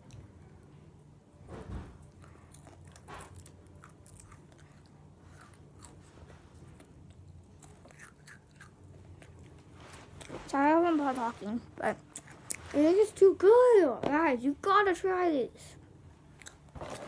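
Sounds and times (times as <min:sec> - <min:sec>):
person chewing crisp snack: 0:02.1 - 0:09.6.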